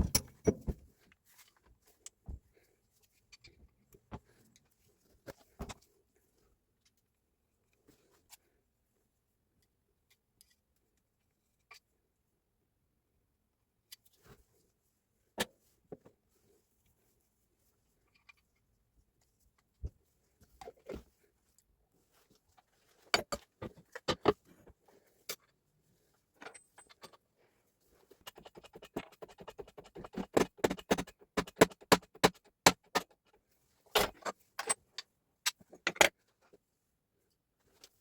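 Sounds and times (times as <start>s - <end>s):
metal tools clinking and knocking: 0.0s - 0.7s.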